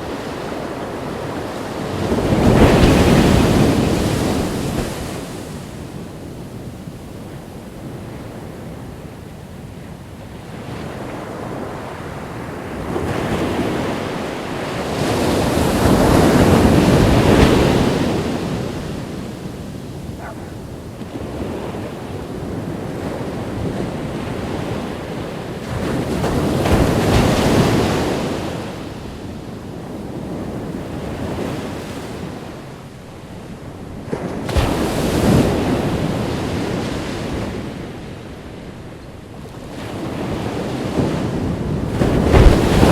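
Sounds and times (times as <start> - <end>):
wind buffeting microphone: 0.0 - 28.6, 38.7 - 42.9
ocean waves breaking: 0.0 - 42.9.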